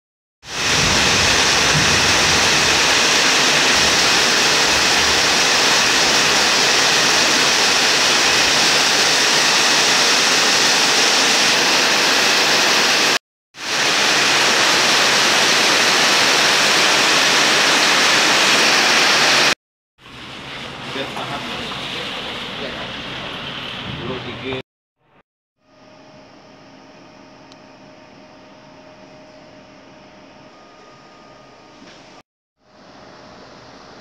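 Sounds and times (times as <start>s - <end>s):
water gushing from a drain pipe: 0.5s - 13.0s
heavy rain falling: 0.5s - 24.6s.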